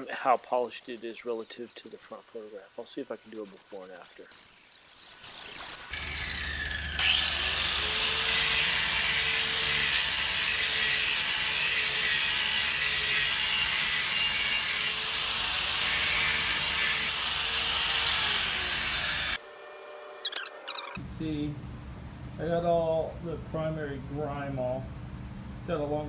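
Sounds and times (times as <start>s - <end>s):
angle grinder grinding steel: 0.0s - 21.0s.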